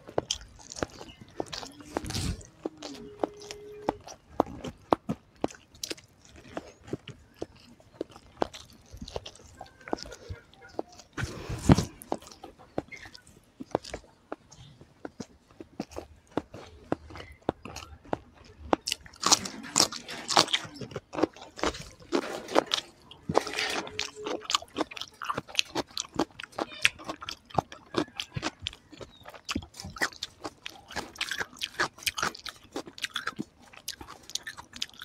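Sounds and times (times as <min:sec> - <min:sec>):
person chewing food: 0:00.0 - 0:35.0.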